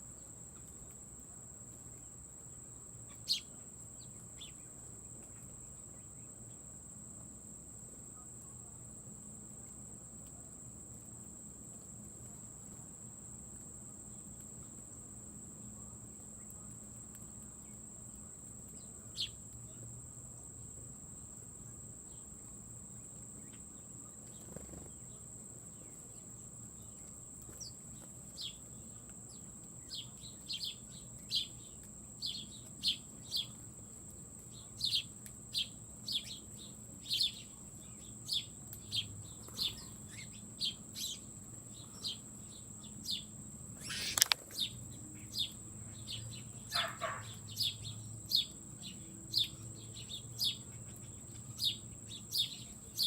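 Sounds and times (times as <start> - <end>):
small bird chirping: 3.0 - 6.6, 18.7 - 19.8, 23.4 - 33.6, 34.5 - 53.0
sharp click: 43.9 - 44.6.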